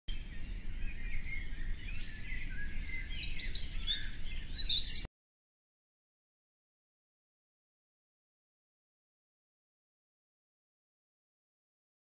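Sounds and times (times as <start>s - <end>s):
small birds chirping: 0.1s - 5.1s.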